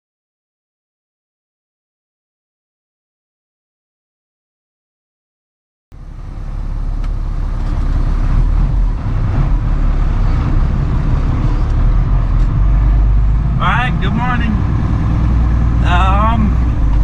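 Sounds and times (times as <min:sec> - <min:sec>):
truck engine rumbling: 0:05.9 - 0:17.0.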